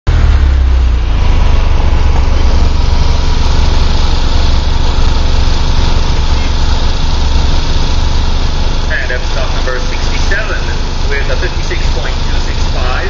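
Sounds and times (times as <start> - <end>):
car engine idling: 0.1 - 13.0.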